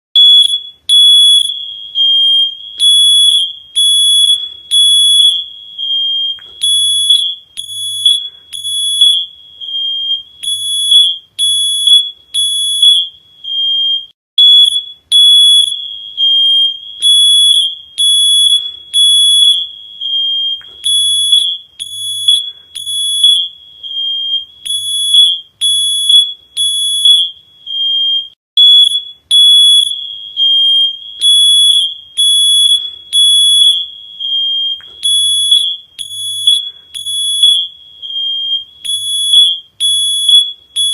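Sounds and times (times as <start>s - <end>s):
electronic alarm beeping: 0.2s - 40.9s.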